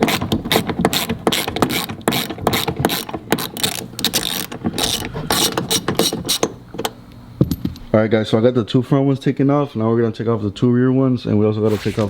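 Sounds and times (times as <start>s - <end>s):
ratchet wrench clicking: 0.0s - 6.6s.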